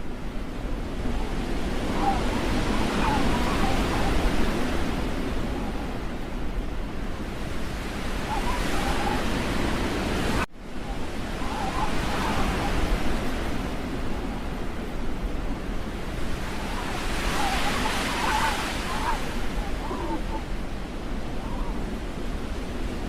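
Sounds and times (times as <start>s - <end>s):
wind rushing: 7.2s - 21.9s.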